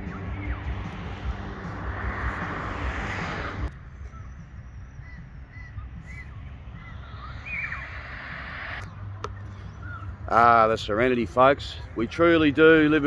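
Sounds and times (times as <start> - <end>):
steady rushing noise: 0.0 - 13.0
birds calling in short calls: 4.0 - 8.3.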